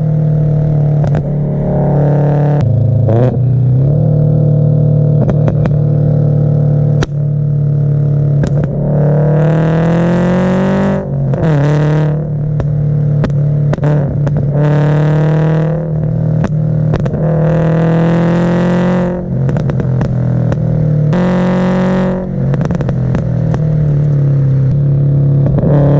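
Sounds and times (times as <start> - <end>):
car engine revving: 0.0 - 25.9
exhaust pops and cracks: 5.2 - 5.8, 7.0 - 7.2, 8.4 - 8.8, 12.5 - 14.6, 16.4 - 17.2, 19.4 - 20.8, 22.5 - 24.3.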